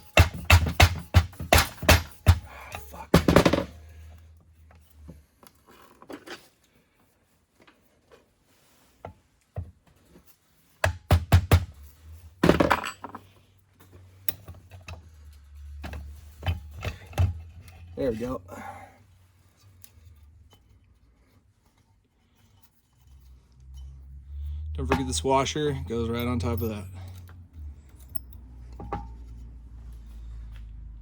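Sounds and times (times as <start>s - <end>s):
metal engine parts knocking and clinking: 0.0s - 4.9s, 10.8s - 18.2s, 22.5s - 29.5s.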